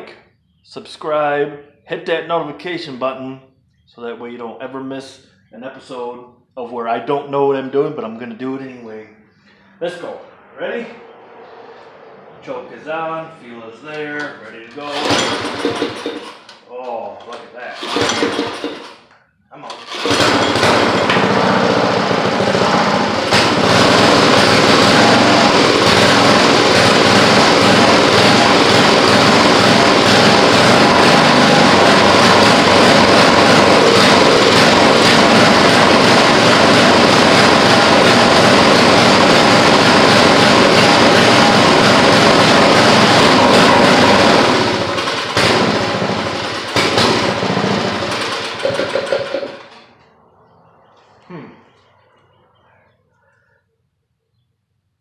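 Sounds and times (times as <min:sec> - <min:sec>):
small engine running: 0:14.8 - 0:16.5, 0:17.6 - 0:19.1, 0:19.7 - 0:49.9.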